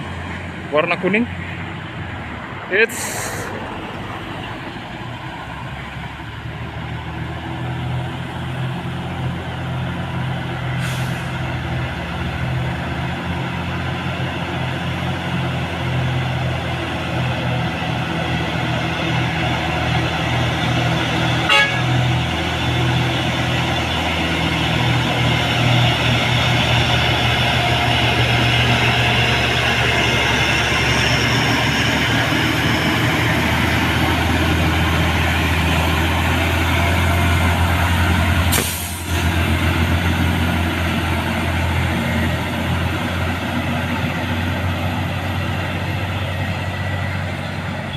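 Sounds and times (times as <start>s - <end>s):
diesel truck engine labouring: 0.0s - 47.9s
brief hiss: 38.5s - 39.1s.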